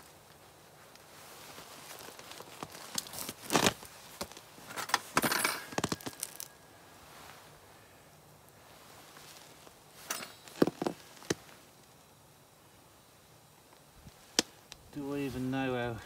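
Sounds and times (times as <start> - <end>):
metal parts and tools clinking: 4.6 - 6.6, 10.0 - 11.0.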